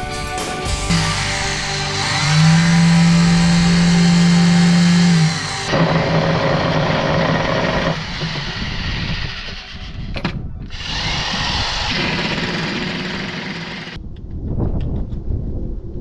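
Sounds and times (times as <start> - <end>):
power tool motor humming: 0.7 - 10.1, 10.7 - 14.0.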